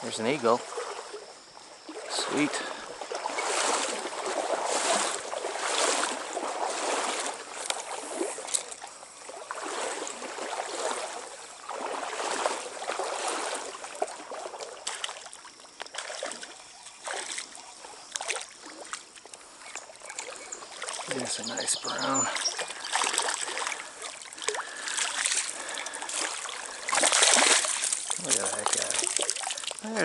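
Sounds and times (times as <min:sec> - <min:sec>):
stream water splashing: 0:00.0 - 0:30.0
sharp splashy clicks: 0:14.0 - 0:17.5, 0:18.1 - 0:21.2, 0:22.4 - 0:29.8.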